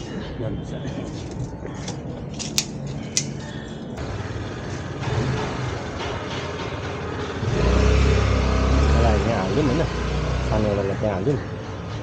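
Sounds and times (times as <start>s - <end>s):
road traffic: 0.0s - 12.0s
vehicle engine running: 4.0s - 12.0s.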